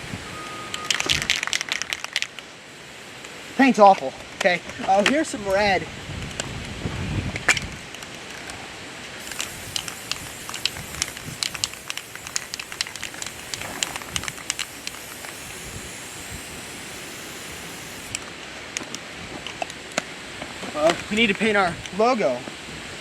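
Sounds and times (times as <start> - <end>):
sharp clicks: 9.2 - 18.2
spray paint can hissing: 9.2 - 18.3.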